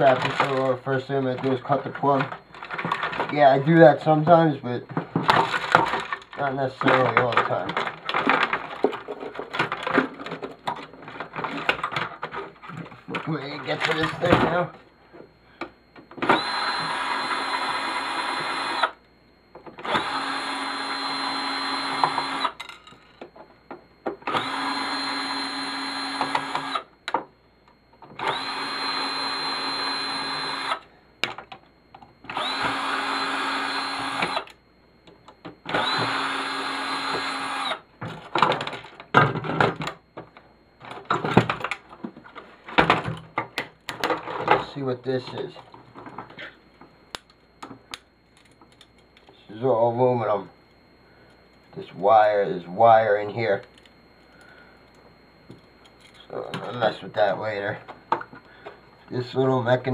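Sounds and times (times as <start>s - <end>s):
power drill running: 16.2s - 19.0s, 19.8s - 22.6s, 24.2s - 26.9s, 28.2s - 30.9s, 32.3s - 34.6s, 35.6s - 37.9s.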